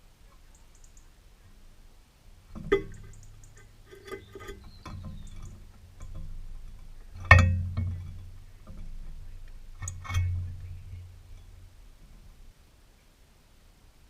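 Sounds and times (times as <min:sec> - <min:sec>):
faint high chirps: 0:00.0 - 0:01.6.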